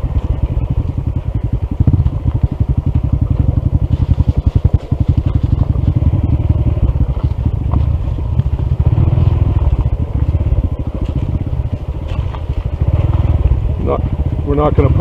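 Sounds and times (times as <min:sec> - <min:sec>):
motorcycle engine pulsing at low revs: 0:00.0 - 0:15.0.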